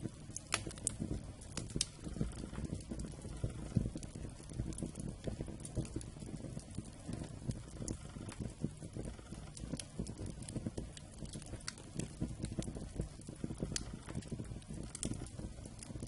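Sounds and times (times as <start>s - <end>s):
campfire crackling: 0.0s - 16.0s
low rumble of flame: 0.0s - 16.0s.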